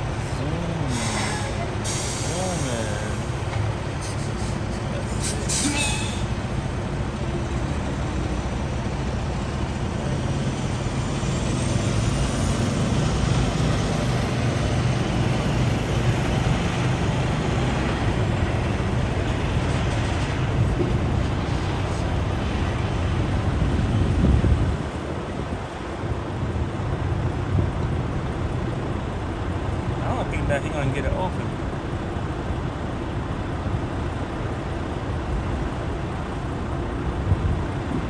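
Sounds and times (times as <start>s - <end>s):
engine idling: 0.0s - 11.6s
road traffic noise: 0.0s - 38.0s.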